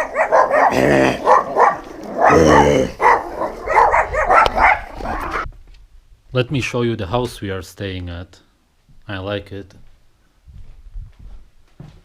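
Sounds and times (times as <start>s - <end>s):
dog barking and yelping: 0.0s - 5.5s.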